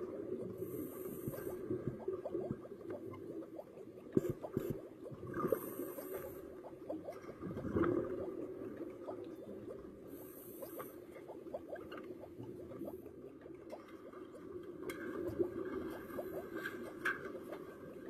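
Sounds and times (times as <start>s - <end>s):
bubbling exhaled air: 0.3s - 13.1s
regulator inhale hiss: 0.6s - 1.7s, 5.4s - 6.4s, 10.1s - 11.1s.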